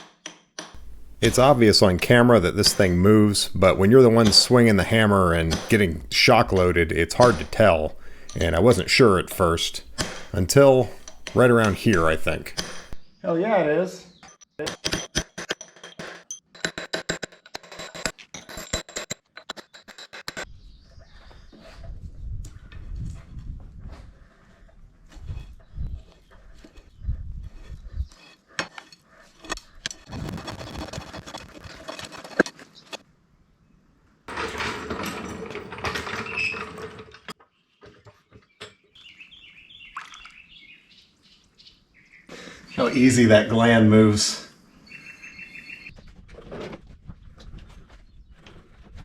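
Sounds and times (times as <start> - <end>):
light metal clicks: 0.8 - 3.8
metal grinding and scraping: 0.8 - 13.0, 28.7 - 33.0
metallic clicking and tapping: 0.8 - 13.0.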